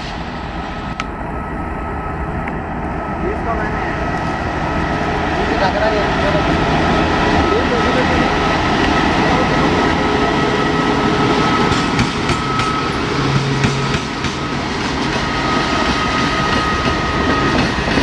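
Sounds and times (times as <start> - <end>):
train rolling rumble: 0.0 - 18.0
thin steady whine: 0.5 - 17.3
train wheels clicking over joints: 11.6 - 18.0.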